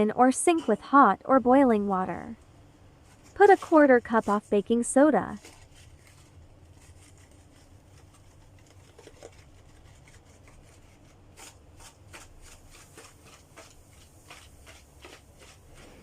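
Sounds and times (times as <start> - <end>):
low steady hum: 0.0 - 11.9
soft scrapes and rustles: 3.0 - 16.0.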